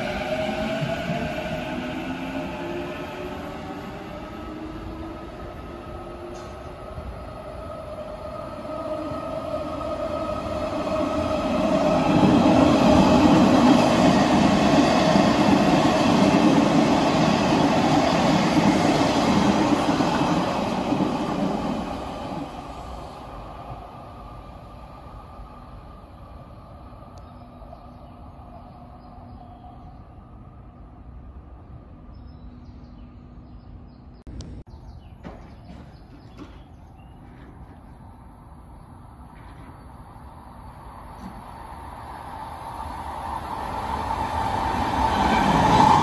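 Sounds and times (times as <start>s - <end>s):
train passing at speed: 0.0s - 46.0s.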